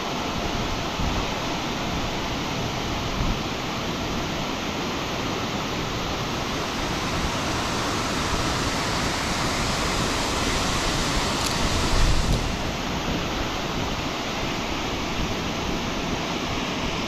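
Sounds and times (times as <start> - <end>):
creek water rushing: 4.0 - 13.6
low buffeting: 5.1 - 13.4.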